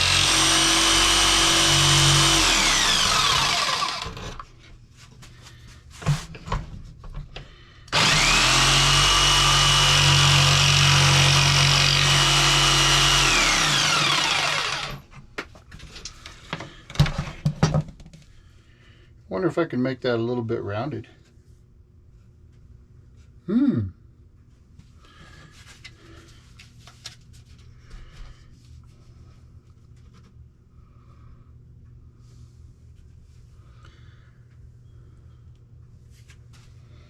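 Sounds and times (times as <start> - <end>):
power tool whining: 0.0 - 4.5, 7.9 - 15.1.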